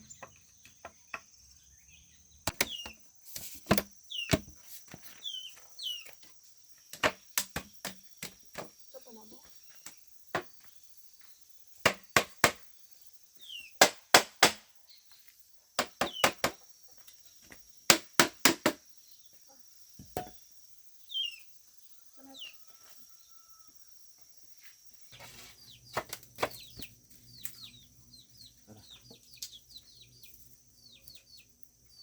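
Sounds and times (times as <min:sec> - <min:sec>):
bird chirps: 0:00.0 - 0:03.2, 0:04.0 - 0:06.3, 0:12.7 - 0:13.8, 0:21.0 - 0:23.6, 0:25.1 - 0:32.0
tool striking bamboo: 0:02.5 - 0:04.6, 0:07.0 - 0:08.7, 0:11.8 - 0:12.6, 0:13.8 - 0:14.7, 0:15.8 - 0:16.6, 0:17.9 - 0:18.8.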